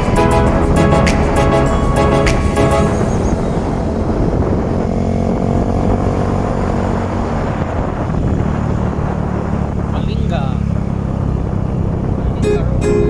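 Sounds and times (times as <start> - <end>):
vehicle engine with road noise: 2.8 - 13.0.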